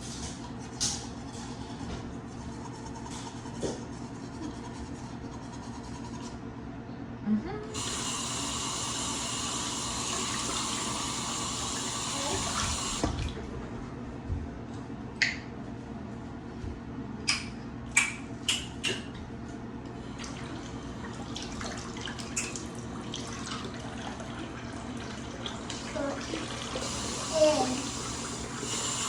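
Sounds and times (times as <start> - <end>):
sink tap running: 7.7 - 13.3, 25.0 - 29.0.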